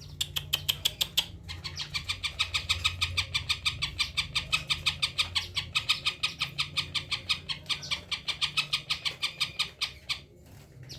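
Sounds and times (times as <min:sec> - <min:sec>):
bird singing rapid sharp notes: 0:00.0 - 0:10.2.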